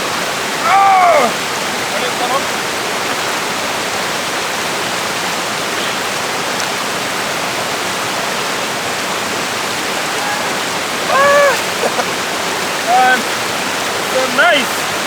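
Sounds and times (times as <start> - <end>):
waterfall rushing: 0.0 - 15.0
high-pitched cry: 10.0 - 12.1.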